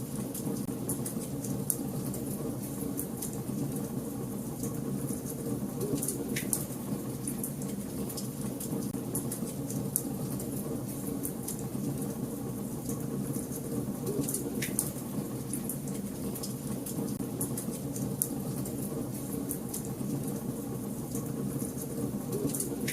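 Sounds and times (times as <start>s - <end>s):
wood fire burning: 0.0s - 22.9s
fire crackling and popping: 12.8s - 22.9s.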